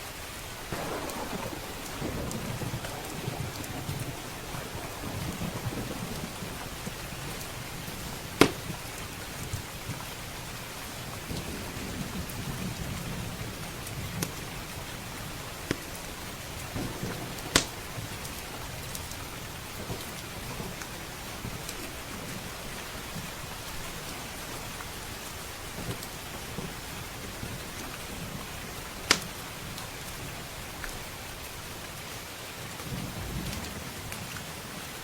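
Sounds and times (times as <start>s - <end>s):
heavy rain hissing: 0.0s - 35.0s
rolling thunder: 0.5s - 30.5s
wood fire popping: 0.7s - 10.2s, 13.8s - 23.2s, 29.1s - 29.8s.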